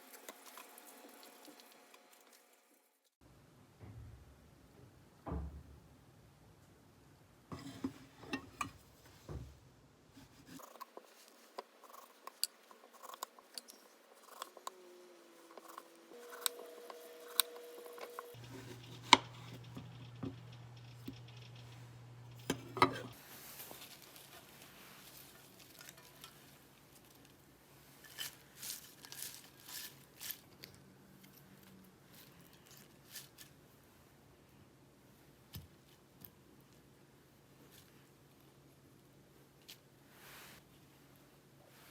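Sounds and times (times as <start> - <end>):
faint steady hum: 3.2 - 28.8.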